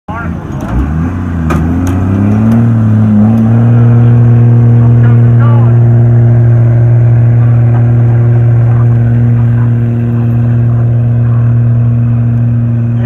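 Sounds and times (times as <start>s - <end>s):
truck engine running at high revs: 0.1s - 13.0s.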